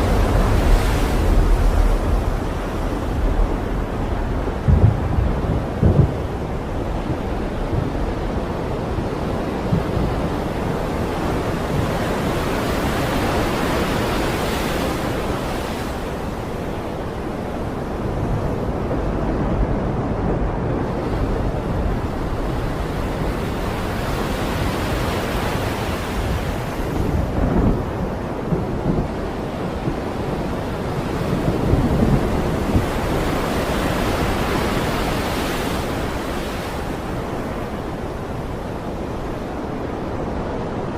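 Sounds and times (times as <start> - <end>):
deep continuous rumble: 0.0 - 12.0
crashing waves: 0.0 - 40.9
wind: 0.0 - 40.9.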